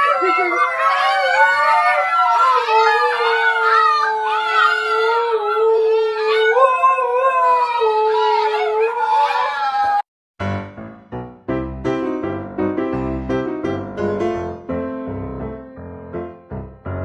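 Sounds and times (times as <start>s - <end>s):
dogs howling together: 0.0s - 10.0s.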